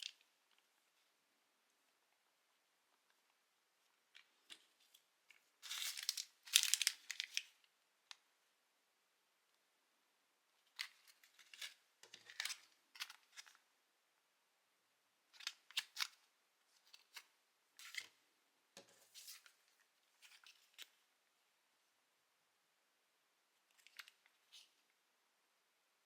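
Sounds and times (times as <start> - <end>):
small clicks and crinkles: 2.9 - 8.3, 10.6 - 13.6, 18.8 - 21.0, 23.7 - 25.0.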